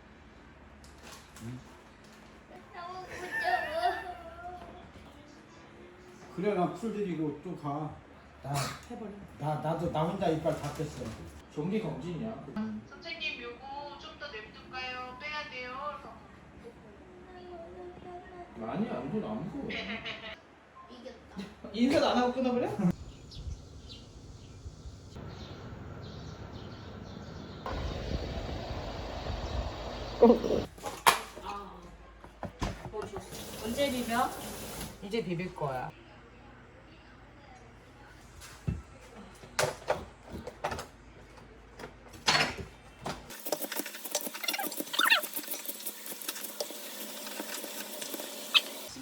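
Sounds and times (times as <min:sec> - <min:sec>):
outdoor background noise: 0:19.6 - 0:49.0
bird chirps: 0:23.0 - 0:30.6
utensil clicking and scraping bowl: 0:43.3 - 0:48.9.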